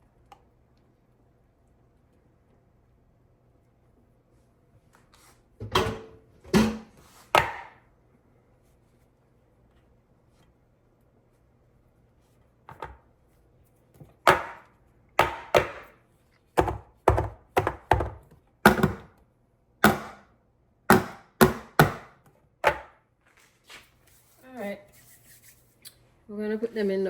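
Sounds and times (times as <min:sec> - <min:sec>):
sharp kitchen thunks: 0:05.6 - 0:07.8, 0:14.2 - 0:15.9, 0:16.6 - 0:19.1, 0:19.8 - 0:20.3, 0:20.9 - 0:22.9.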